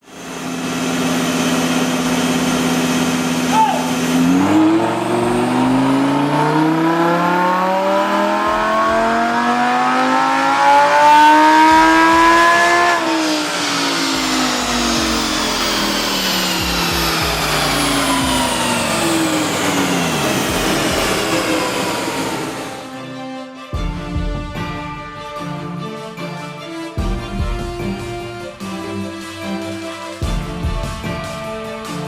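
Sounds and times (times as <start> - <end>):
sports car engine revving: 0.0 - 22.9.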